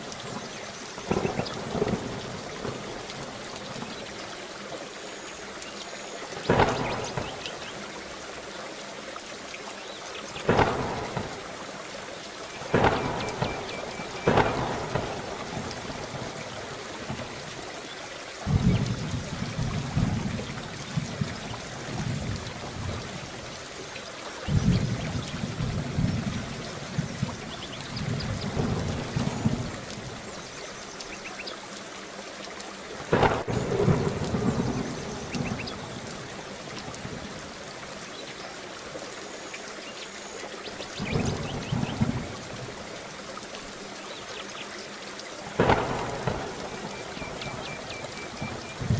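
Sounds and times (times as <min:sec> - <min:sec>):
heavy rain: 0:00.0 - 0:48.9
low rolling thunder: 0:01.1 - 0:03.1, 0:06.5 - 0:07.4, 0:10.4 - 0:11.5, 0:12.7 - 0:17.4, 0:18.4 - 0:23.4, 0:24.4 - 0:30.3, 0:33.1 - 0:37.4, 0:41.0 - 0:42.7, 0:45.6 - 0:48.9
thunder cracks: 0:06.5 - 0:07.4, 0:10.5 - 0:11.4, 0:12.7 - 0:16.3, 0:18.5 - 0:21.3, 0:33.1 - 0:35.8, 0:45.6 - 0:48.9.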